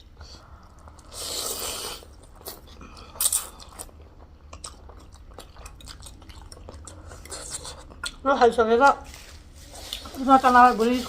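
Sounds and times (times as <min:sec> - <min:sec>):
chewing with wet clicks: 0:02.1 - 0:08.3.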